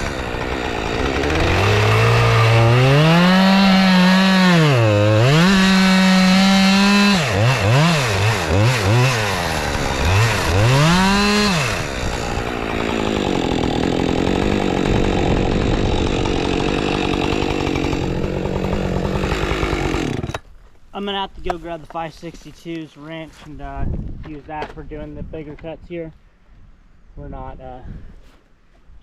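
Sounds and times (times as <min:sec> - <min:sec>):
chainsaw revving and cutting wood: 0:00.0 - 0:20.4.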